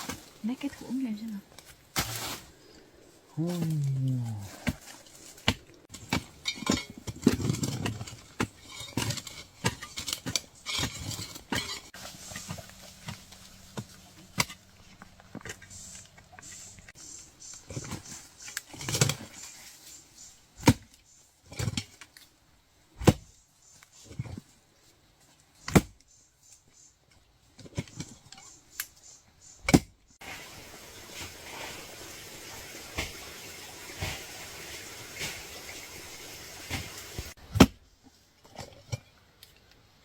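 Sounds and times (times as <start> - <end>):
digging tool chopping earth: 20.6 - 20.9, 23.0 - 23.4, 25.6 - 26.0, 36.7 - 37.8
steady hiss: 30.2 - 37.4.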